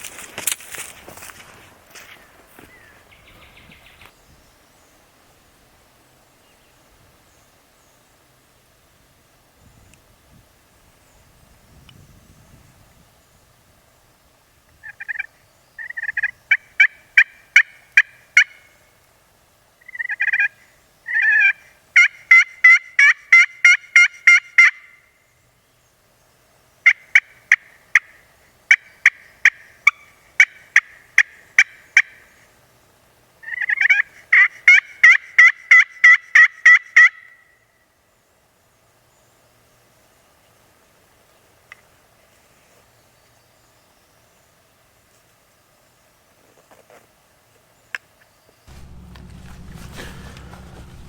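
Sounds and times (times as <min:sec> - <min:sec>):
turkey call hen yelps: 0:19.9 - 0:25.0, 0:33.4 - 0:37.6.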